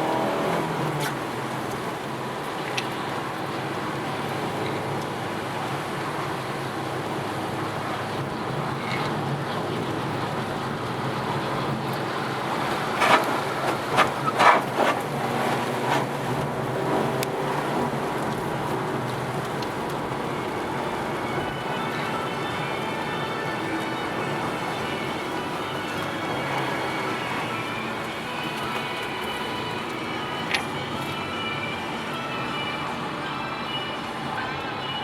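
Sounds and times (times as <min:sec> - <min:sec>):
car engine running: 0:00.0 - 0:21.6
road noise: 0:00.0 - 0:35.0.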